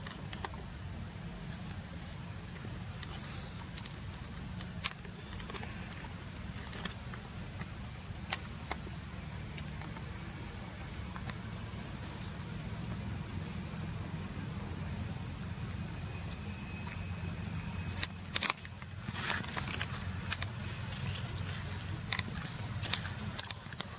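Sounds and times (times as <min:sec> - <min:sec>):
thin high whine: 0:00.0 - 0:23.4
low hum: 0:00.0 - 0:23.8.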